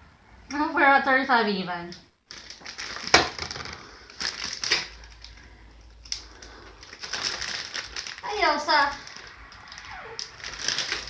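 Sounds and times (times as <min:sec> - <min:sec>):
plastic bag crinkling: 0:02.3 - 0:11.0.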